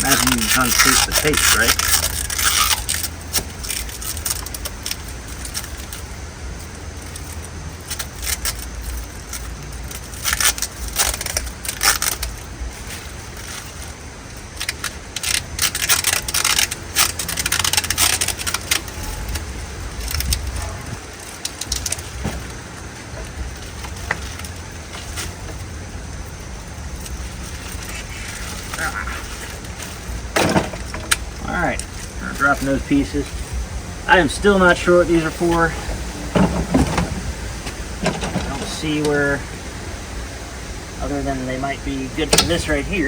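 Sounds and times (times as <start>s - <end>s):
packaging rustling: 0.0s - 6.1s, 7.0s - 25.8s
low rumble: 18.6s - 43.0s.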